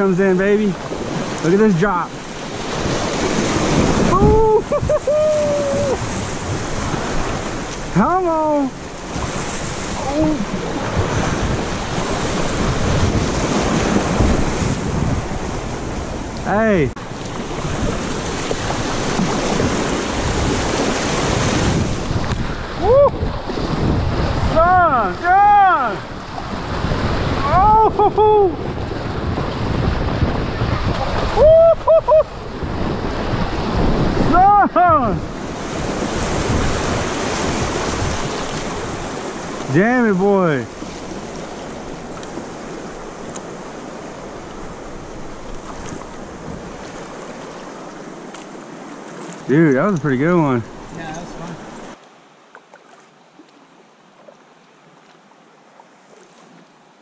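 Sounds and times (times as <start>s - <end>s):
whitewater rushing: 0.0s - 52.0s
wind noise on microphone: 2.5s - 8.0s, 9.0s - 39.9s
person shouting woo: 4.1s - 6.0s, 22.8s - 23.2s, 24.5s - 26.0s, 27.4s - 28.6s, 31.3s - 32.3s, 34.3s - 35.2s.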